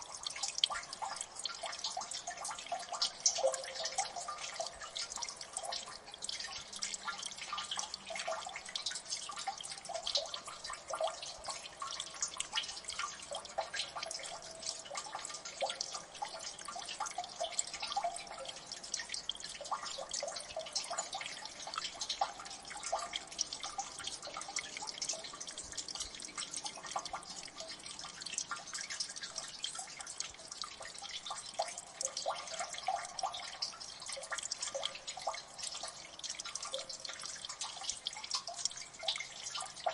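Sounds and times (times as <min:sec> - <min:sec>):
water dripping: 0:00.0 - 0:39.9.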